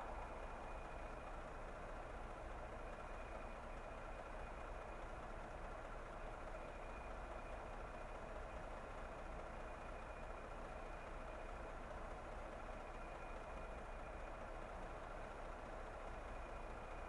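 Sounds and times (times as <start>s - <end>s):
faint high whine: 0.0s - 5.2s
car road and engine noise: 0.0s - 17.0s.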